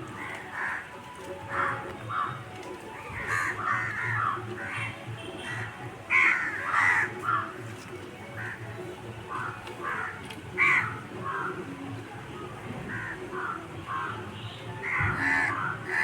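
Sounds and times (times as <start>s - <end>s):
crows cawing: 0.1s - 2.4s, 3.0s - 7.7s, 8.4s - 8.6s, 9.3s - 11.6s, 12.9s - 14.2s, 14.8s - 16.0s.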